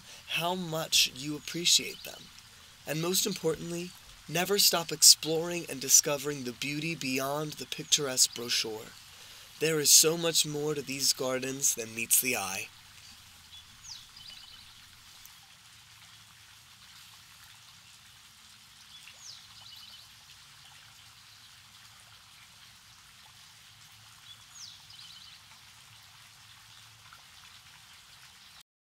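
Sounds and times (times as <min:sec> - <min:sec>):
songbird singing: 0:00.0 - 0:15.0, 0:18.9 - 0:20.1, 0:24.2 - 0:25.4
steady hiss: 0:00.0 - 0:17.3.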